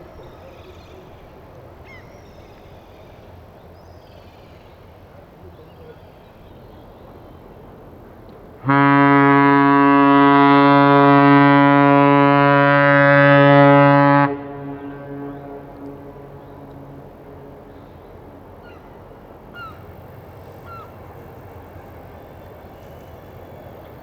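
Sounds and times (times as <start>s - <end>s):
ship's horn blast: 8.6s - 18.6s.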